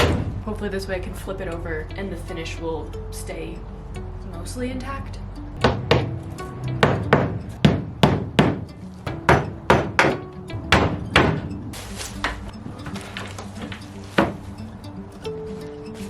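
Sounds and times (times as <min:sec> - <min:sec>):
hammer blows on wood: 0:06.8 - 0:11.5.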